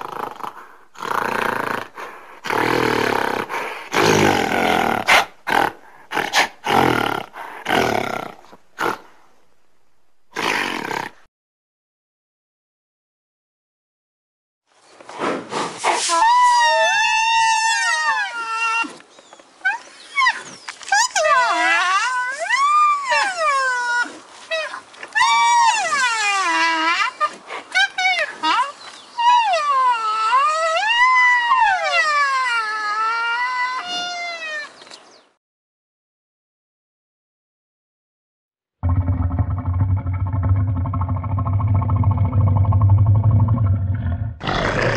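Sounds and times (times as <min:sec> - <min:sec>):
rhinoceros grunting: 0:38.8 - 0:44.9.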